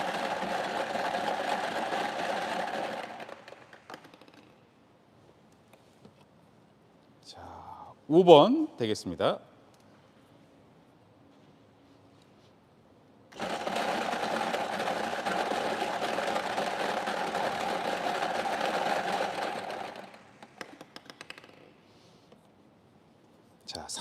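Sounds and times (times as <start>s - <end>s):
prize-draw machine rattling: 0.0s - 4.1s, 13.4s - 20.6s.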